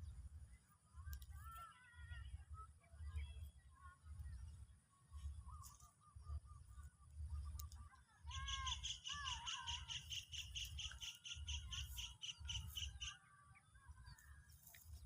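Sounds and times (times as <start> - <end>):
bird sharp high chirps: 8.3 - 13.2
lower whistled bird notes: 8.3 - 13.2.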